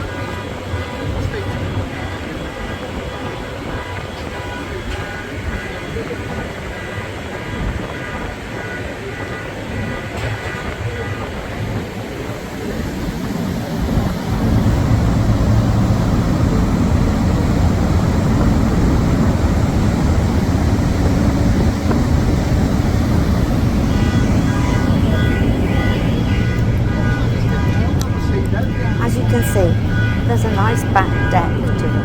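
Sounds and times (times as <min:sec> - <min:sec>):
ferry engine rumble: 0:00.0 - 0:32.0.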